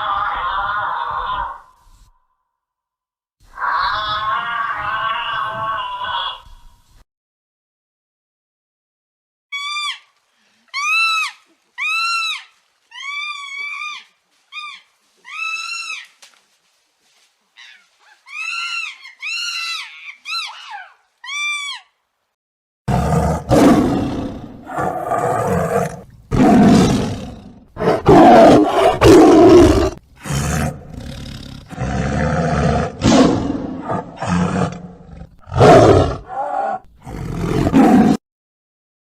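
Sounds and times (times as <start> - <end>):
animal roaring and growling: 22.9 - 38.2.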